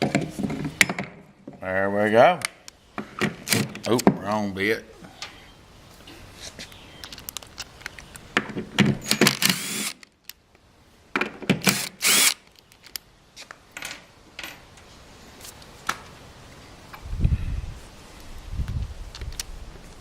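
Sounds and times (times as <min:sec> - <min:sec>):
power drill bursts: 0:09.3 - 0:10.0, 0:11.7 - 0:12.4.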